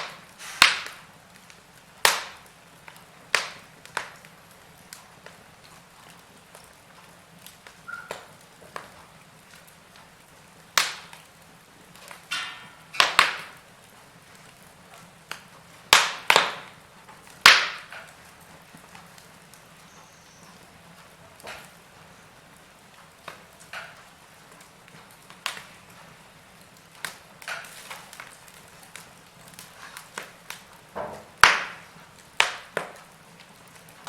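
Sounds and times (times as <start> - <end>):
sharp loud pops: 0.0 - 1.0, 31.0 - 32.7
fire crackling in fireplace: 0.0 - 34.0.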